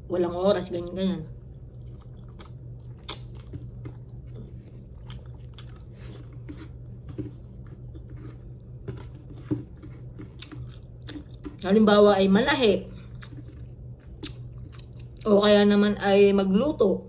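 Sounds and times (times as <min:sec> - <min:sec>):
steady low hum: 0:00.0 - 0:17.0
person chewing food: 0:01.4 - 0:11.7, 0:12.9 - 0:15.3.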